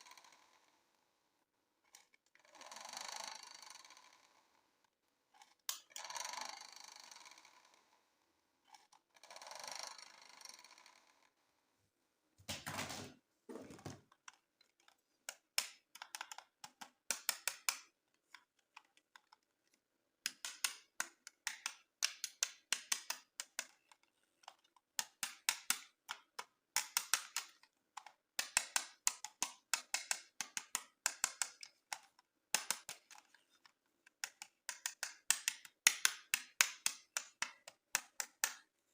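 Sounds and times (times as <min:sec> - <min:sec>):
rapid plastic clicks: 0:14.0 - 0:38.7.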